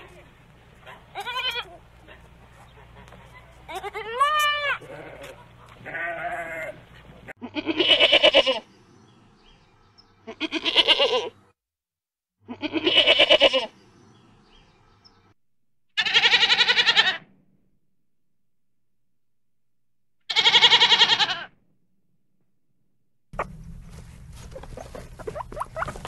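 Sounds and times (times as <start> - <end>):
goats bleating: 1.1 - 1.9, 3.0 - 8.6, 10.2 - 11.4, 12.5 - 13.7, 16.0 - 17.3, 20.3 - 21.6.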